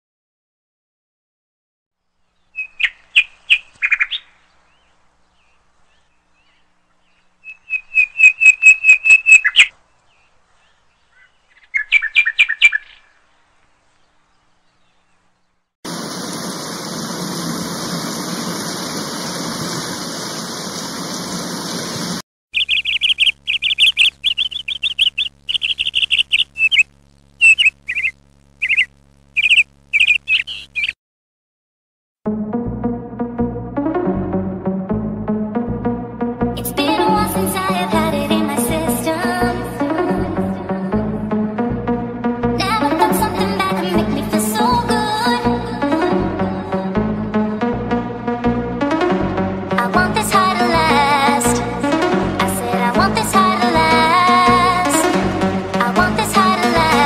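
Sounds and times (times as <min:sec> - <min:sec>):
bird-like chirps and trills: 0:02.1 - 0:17.3, 0:18.0 - 0:31.0.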